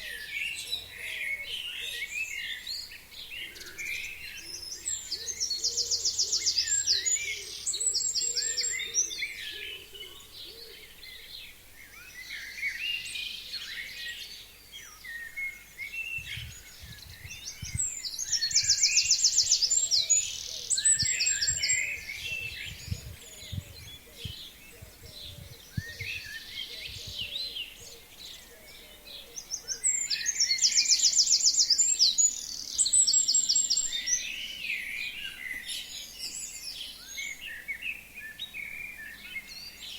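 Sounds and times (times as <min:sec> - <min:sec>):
songbird trilled song: 0:11.2 - 0:39.9
birds chirping: 0:16.1 - 0:32.8.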